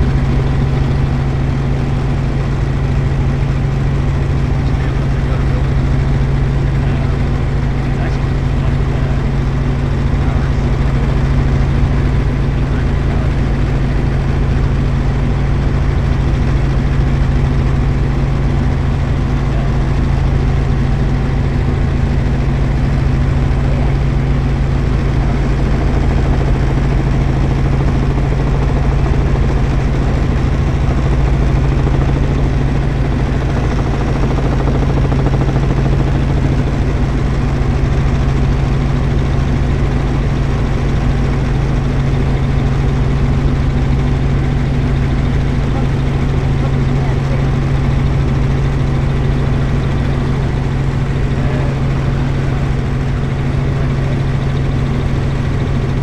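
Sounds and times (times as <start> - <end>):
helicopter engine and rotors: 0.0 - 56.0.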